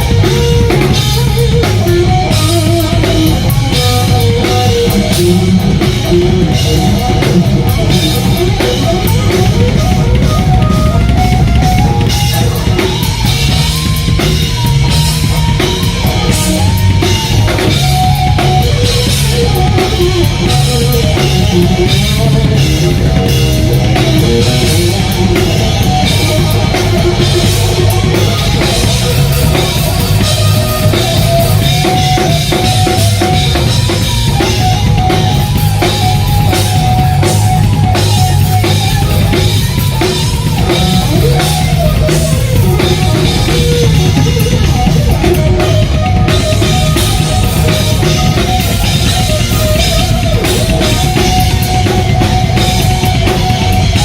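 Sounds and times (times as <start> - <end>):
electric guitar lead: 0.0 - 54.0
hard rock band playing: 0.0 - 54.0.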